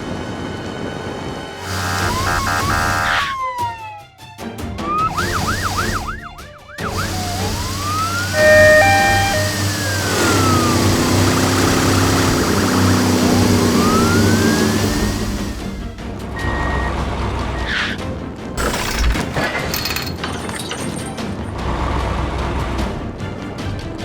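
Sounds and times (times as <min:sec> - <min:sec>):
cartoon police siren: 0:01.6 - 0:04.2, 0:04.8 - 0:15.7
low held tone: 0:05.1 - 0:15.3.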